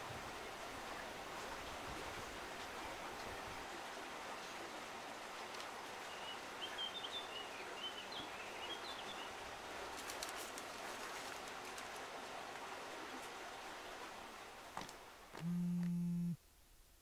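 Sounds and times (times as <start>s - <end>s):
outdoor background hiss: 0.0s - 17.0s
faint ticks: 14.8s - 16.4s.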